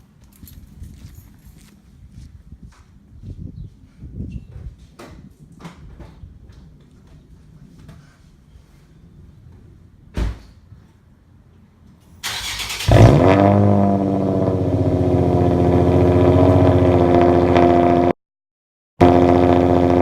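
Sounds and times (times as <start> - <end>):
thump: 10.2 - 10.5
car engine flaring and idling: 12.2 - 18.1, 19.0 - 20.0.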